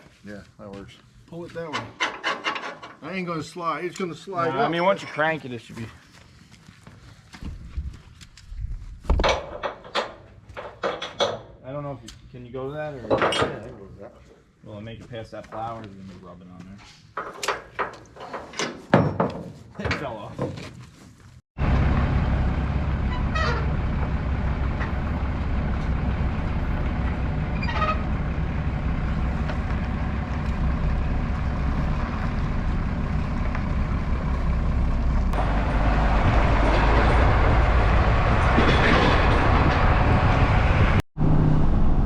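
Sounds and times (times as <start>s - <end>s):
road rumble: 21.2s - 42.0s
diesel engine running: 21.6s - 42.0s
short rising squeaks: 23.0s - 25.2s, 26.0s - 31.0s.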